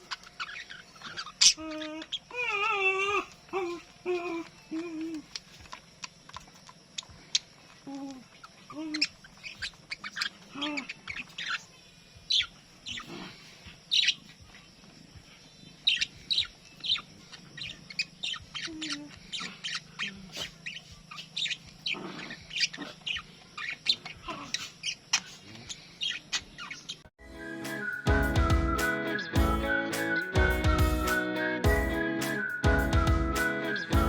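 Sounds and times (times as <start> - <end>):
budgerigars chirping: 0.0 - 2.3, 8.4 - 11.7, 12.3 - 13.2, 13.9 - 14.2, 15.8 - 27.1
guitar music: 27.2 - 34.0.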